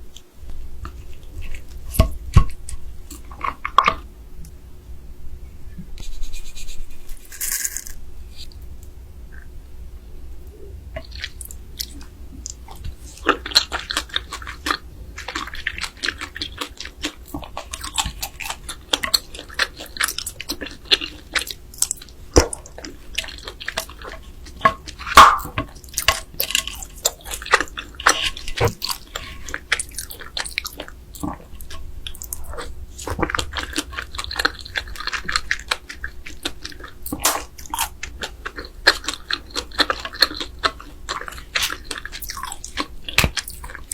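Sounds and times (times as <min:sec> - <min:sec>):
biting and chewing crab: 0:11.0 - 0:43.9.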